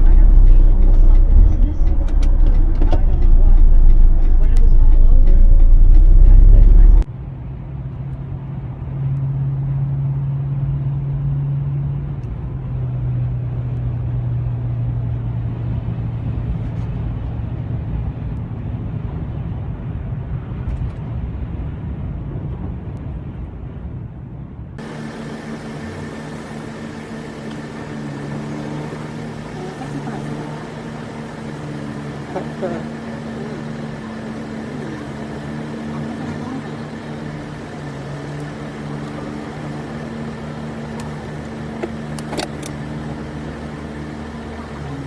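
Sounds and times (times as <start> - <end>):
steady hum with tones: 0.0 - 7.1
car engine and road noise: 0.0 - 45.0.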